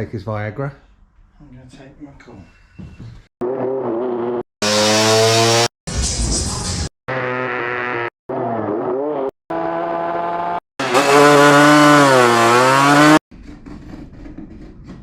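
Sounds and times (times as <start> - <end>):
high-revving engine: 3.4 - 5.7, 7.1 - 13.2.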